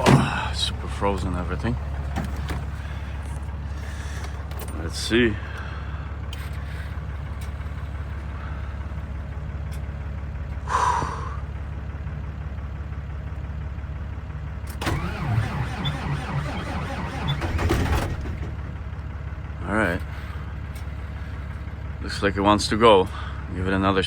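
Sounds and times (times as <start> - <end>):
diesel truck engine cranking: 0.0 - 8.8, 14.6 - 19.1.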